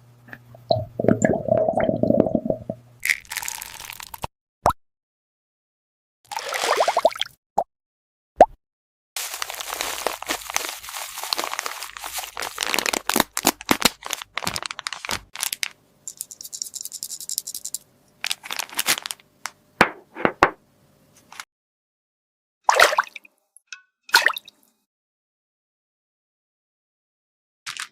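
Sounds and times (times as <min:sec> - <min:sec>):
plastic packaging crinkling and tearing: 0:03.1 - 0:04.3, 0:09.2 - 0:15.8, 0:18.2 - 0:19.3.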